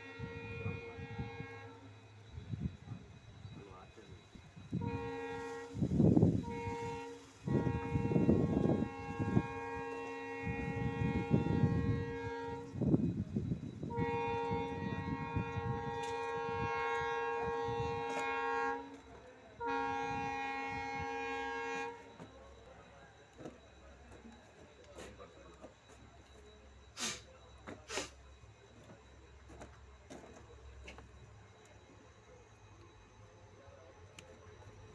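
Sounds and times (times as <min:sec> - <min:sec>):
locomotive horn blasts: 0:00.0 - 0:25.8
passing train rumbling: 0:00.0 - 0:34.9.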